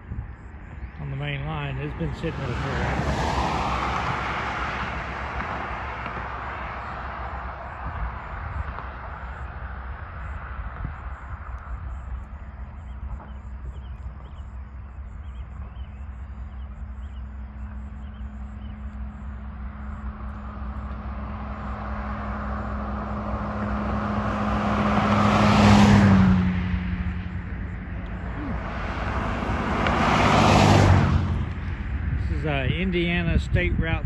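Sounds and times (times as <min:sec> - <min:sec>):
constant low rumble: 0:00.0 - 0:34.0
vehicle passing by: 0:01.0 - 0:34.0.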